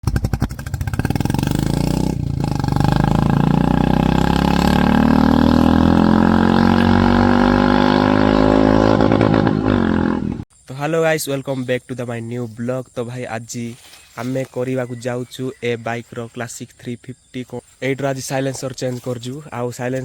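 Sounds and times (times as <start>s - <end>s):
motorcycle engine revving: 0.0s - 10.4s.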